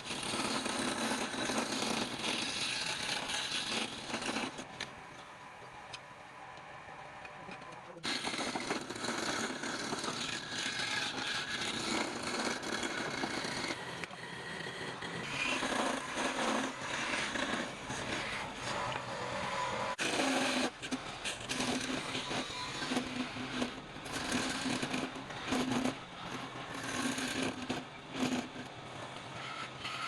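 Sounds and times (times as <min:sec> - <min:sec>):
power tool working wood: 0:08.0 - 0:28.7.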